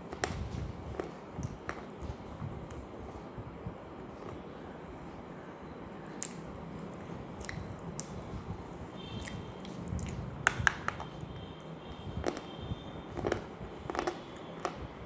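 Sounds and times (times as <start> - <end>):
person chewing crunchy food: 7.3 - 8.2, 9.2 - 11.3, 12.2 - 12.5, 13.1 - 14.8.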